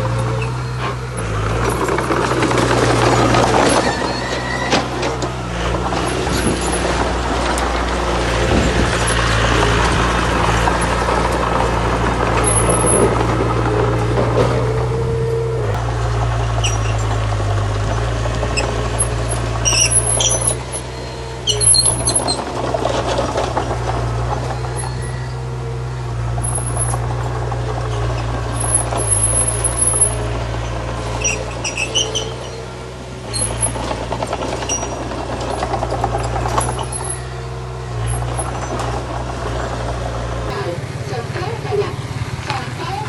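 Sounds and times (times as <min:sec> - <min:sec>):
bulldozer engine running: 0:00.0 - 0:43.0
short high-pitched squeaks: 0:00.1 - 0:07.1, 0:12.4 - 0:13.2, 0:16.6 - 0:17.2, 0:18.0 - 0:39.0
metal clatter: 0:00.1 - 0:15.0, 0:26.1 - 0:40.5.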